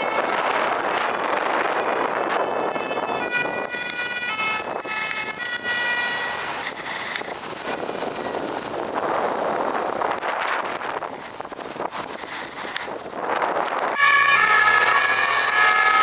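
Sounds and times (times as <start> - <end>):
steady traffic: 0.0 - 16.0
wind noise: 0.0 - 16.0
two-tone siren: 2.3 - 7.2, 14.0 - 16.0.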